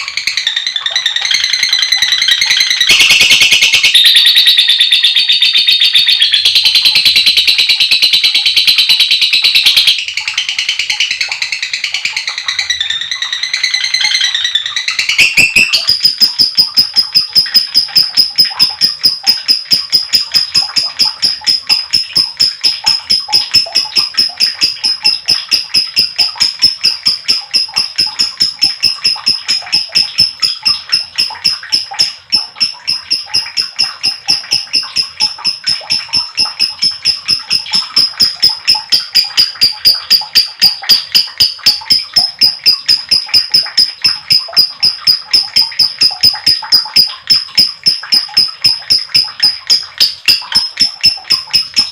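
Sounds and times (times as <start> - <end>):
lovebird twittering chirps: 0.0 - 51.9
lovebird shrill chatter: 11.6 - 19.4.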